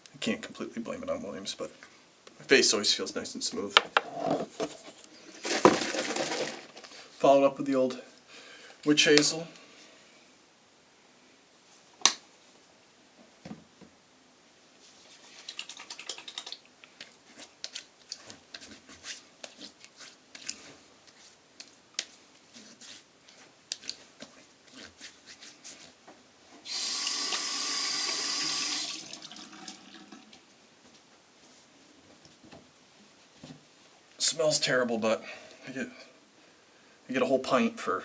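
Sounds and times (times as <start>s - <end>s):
small wet clicks and pats: 15.2s - 22.2s, 23.2s - 26.0s
sink tap running: 26.7s - 30.2s.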